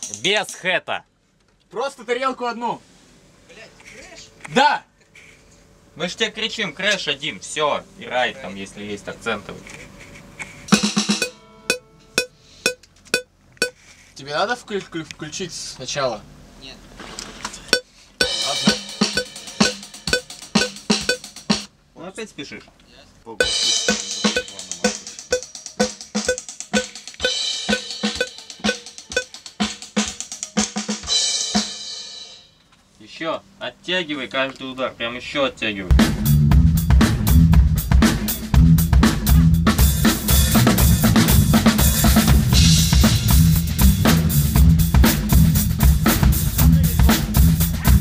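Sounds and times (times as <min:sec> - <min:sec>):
drum kit beat: 0:10.7 - 0:11.4, 0:12.2 - 0:13.3, 0:18.2 - 0:21.7, 0:23.4 - 0:32.1, 0:35.9 - 0:48.0
cymbals: 0:10.7 - 0:12.8, 0:18.2 - 0:21.4, 0:23.4 - 0:29.4
crash cymbal ringing: 0:18.2 - 0:21.3.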